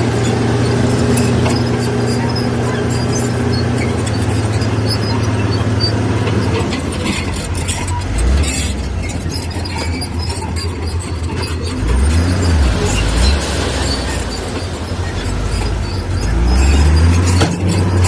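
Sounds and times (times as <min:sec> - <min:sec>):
clanks and rattles: 0:00.0 - 0:18.0
heavy machinery diesel engine: 0:00.0 - 0:18.0.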